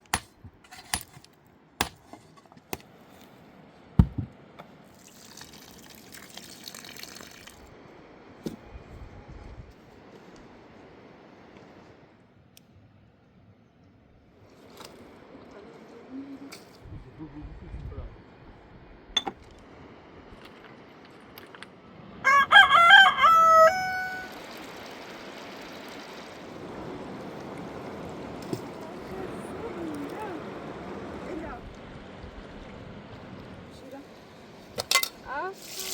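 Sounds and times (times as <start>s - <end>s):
heavy thud: 4.0s - 4.3s
sharp knocks: 4.0s - 4.3s
water running: 4.9s - 7.7s, 24.2s - 35.9s
rooster crowing: 22.2s - 24.5s.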